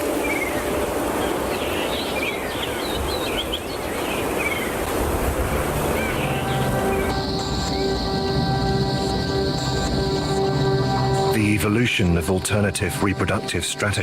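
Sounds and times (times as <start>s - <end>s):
steady rushing noise: 0.0s - 14.0s
music: 5.6s - 14.0s.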